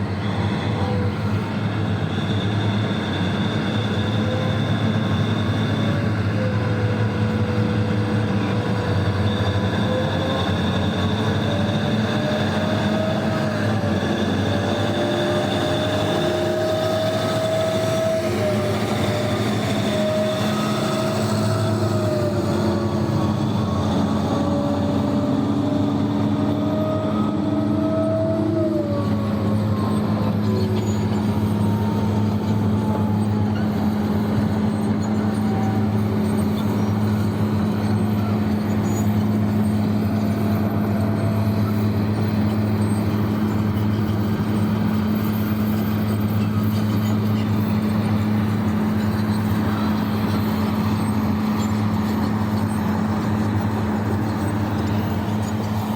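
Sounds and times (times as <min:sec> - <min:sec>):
diesel engine deep hum: 0:00.0 - 0:55.9
machinery whine: 0:00.0 - 0:55.9.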